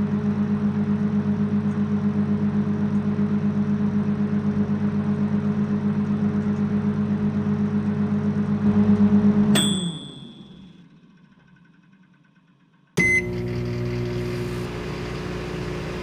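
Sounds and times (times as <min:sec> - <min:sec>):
microwave oven humming: 0:00.0 - 0:11.9, 0:13.0 - 0:16.0
microwave high beep: 0:09.6 - 0:10.8, 0:13.0 - 0:16.0.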